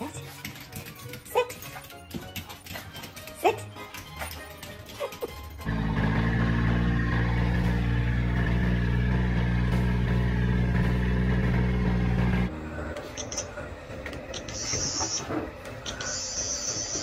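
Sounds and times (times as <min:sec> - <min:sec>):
vehicle engine hum: 0:05.6 - 0:14.7.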